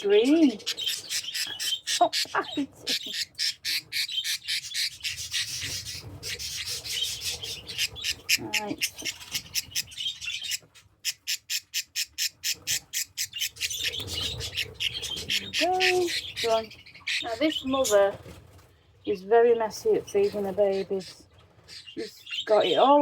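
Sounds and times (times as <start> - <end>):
budgerigar chick squawking: 0.0 - 18.2.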